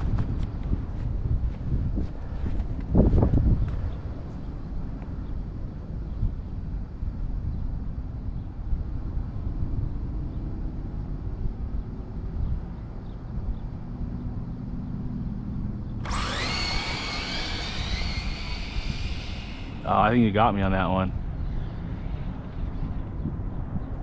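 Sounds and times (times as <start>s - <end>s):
wind rumbling on microphone: 0.0s - 24.0s
electric motors whining: 16.0s - 20.4s.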